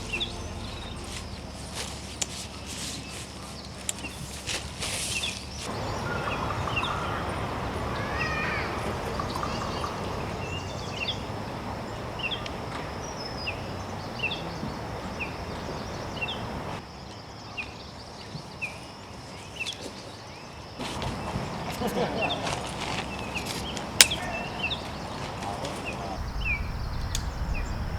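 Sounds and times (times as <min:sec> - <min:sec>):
bird chirping: 0:00.0 - 0:04.2, 0:26.2 - 0:27.9
bird warbling call: 0:26.2 - 0:27.9
steady rushing noise: 0:26.2 - 0:27.9.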